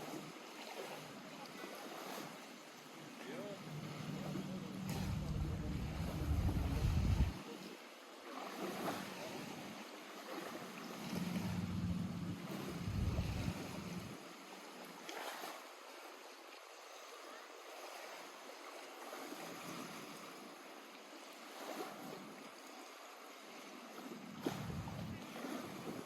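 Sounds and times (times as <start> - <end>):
waves lapping at shore: 0.0 - 26.0
low rumble: 3.9 - 7.4, 11.2 - 14.1, 24.4 - 25.2.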